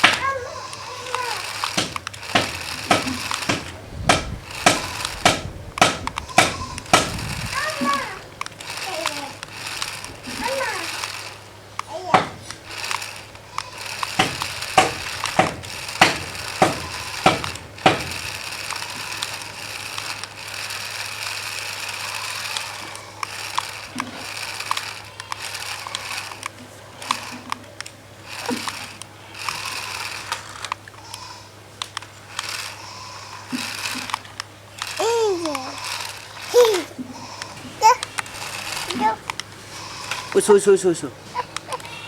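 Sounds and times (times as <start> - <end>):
regular knocks: 0.0 - 20.7
toy car motor whirring: 0.0 - 42.0.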